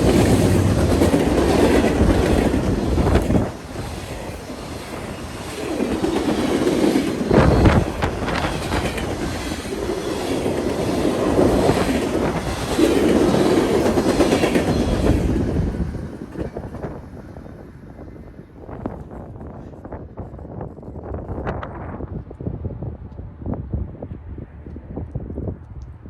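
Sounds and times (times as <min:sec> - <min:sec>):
train wheels clacking over rail joints: 0:00.0 - 0:17.0.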